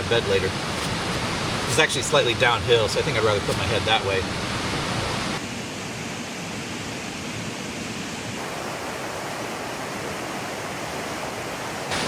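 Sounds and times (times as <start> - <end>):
mountain creek flowing: 8.4 - 12.0.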